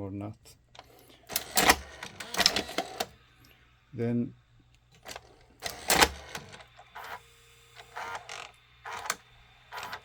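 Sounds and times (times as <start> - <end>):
motor whirring: 5.0 - 10.0.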